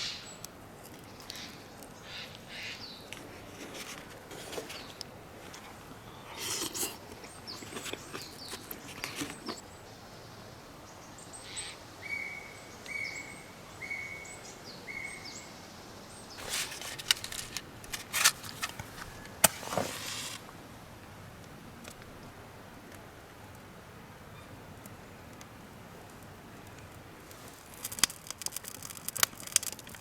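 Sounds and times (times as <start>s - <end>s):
rustling and clicking handling noises: 3.1s - 9.6s, 16.4s - 20.5s, 26.2s - 30.0s.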